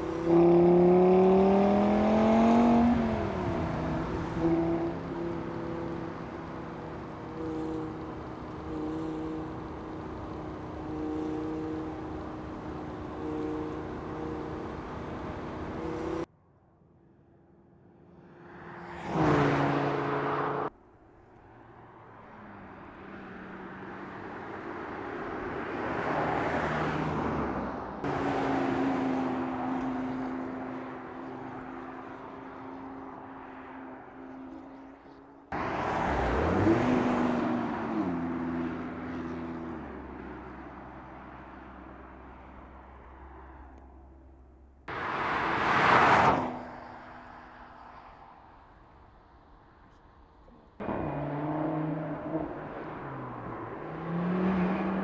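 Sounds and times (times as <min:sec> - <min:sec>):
engine revving under acceleration: 0:00.0 - 0:16.3, 0:35.5 - 0:40.0, 0:50.8 - 0:55.0.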